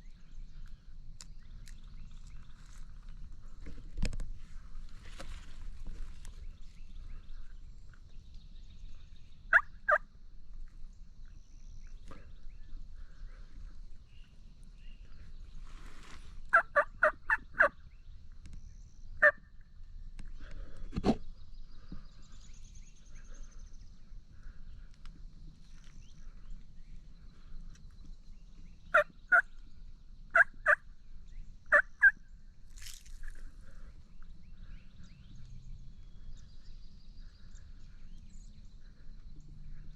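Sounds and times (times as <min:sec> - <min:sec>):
turkey yelps: 0:09.5 - 0:10.0, 0:16.5 - 0:17.7, 0:29.0 - 0:29.4, 0:30.3 - 0:30.8, 0:31.7 - 0:32.2.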